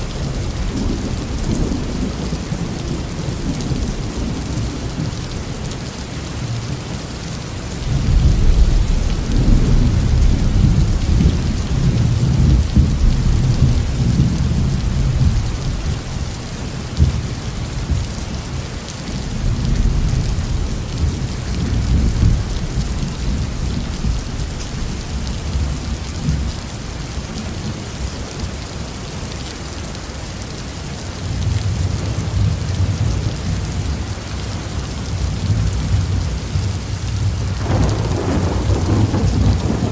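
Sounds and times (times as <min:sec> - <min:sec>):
heavy rain on a roof: 0:00.0 - 0:39.9
deep rolling thunder: 0:07.9 - 0:16.2, 0:19.2 - 0:26.5, 0:35.4 - 0:39.9.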